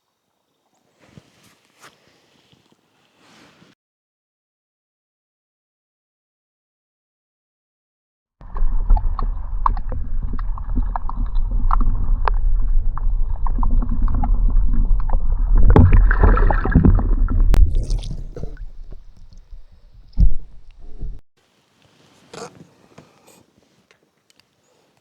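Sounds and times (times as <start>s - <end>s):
water sloshing and gurgling: 8.4s - 21.2s.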